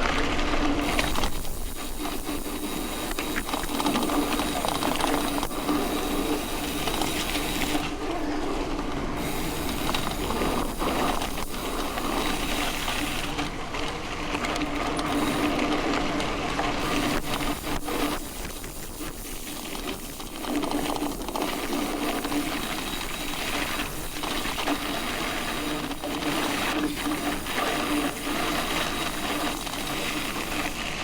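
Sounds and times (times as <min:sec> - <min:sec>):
bike clicks and rattles: 0:00.0 - 0:31.0
bike tyres on gravel: 0:00.0 - 0:31.0
steady hum: 0:00.6 - 0:13.4.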